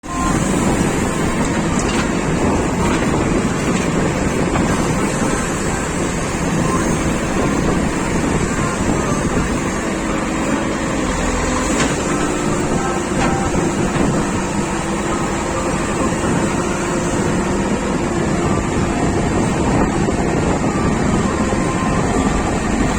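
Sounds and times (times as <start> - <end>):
diesel engine running: 0.0 - 22.9.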